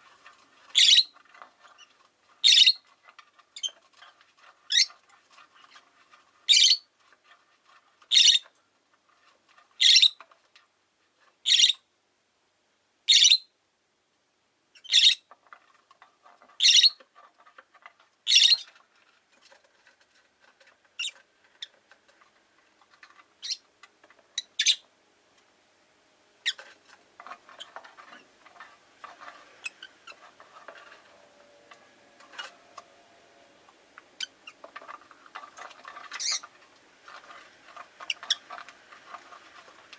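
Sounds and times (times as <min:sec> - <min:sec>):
soft rustling with small clicks: 0:00.0 - 0:11.5, 0:15.2 - 0:24.6, 0:26.4 - 0:33.0, 0:33.6 - 0:39.9
lovebird high-pitched calls: 0:00.7 - 0:01.2, 0:01.8 - 0:02.8, 0:04.7 - 0:04.9, 0:06.5 - 0:06.9, 0:08.1 - 0:08.4, 0:09.8 - 0:10.2, 0:11.4 - 0:11.8, 0:13.1 - 0:13.5, 0:14.8 - 0:15.3, 0:16.6 - 0:17.0, 0:18.2 - 0:18.7, 0:23.4 - 0:23.6, 0:24.4 - 0:24.8, 0:36.1 - 0:36.4.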